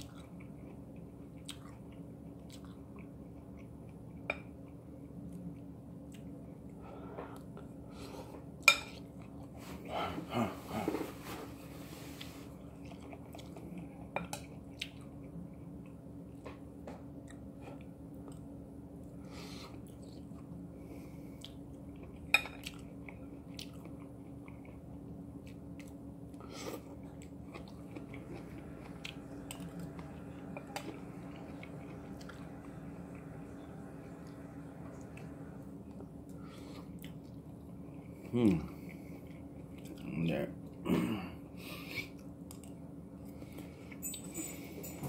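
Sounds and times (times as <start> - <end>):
chewing vegetables: 0.0 - 6.8, 12.0 - 16.4, 21.3 - 40.8
low hum: 0.0 - 45.0.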